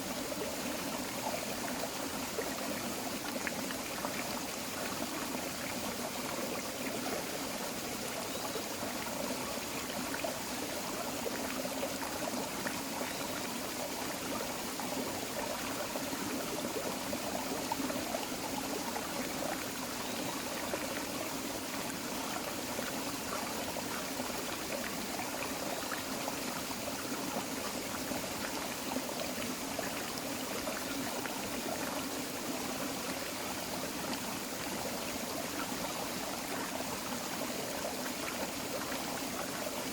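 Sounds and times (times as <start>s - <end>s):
creek babbling over rocks: 0.0s - 39.9s.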